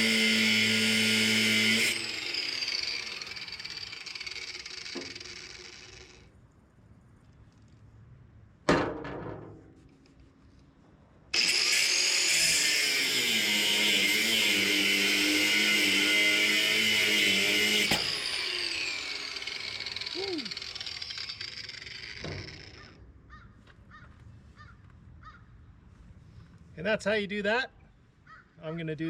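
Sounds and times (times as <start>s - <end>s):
angle grinder cutting metal: 0.0s - 6.3s, 11.4s - 23.0s.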